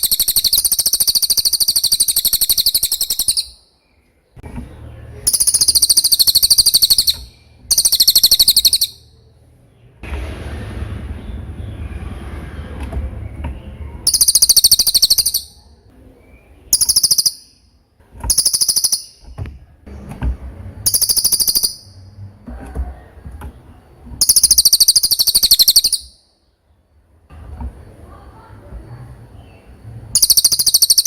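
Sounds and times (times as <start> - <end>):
bird singing rapid trills: 0.0 - 4.0, 5.0 - 10.0, 14.0 - 19.4, 20.8 - 22.2, 24.2 - 26.6, 29.4 - 31.0
low steady rumble: 8.4 - 14.6, 19.4 - 20.9.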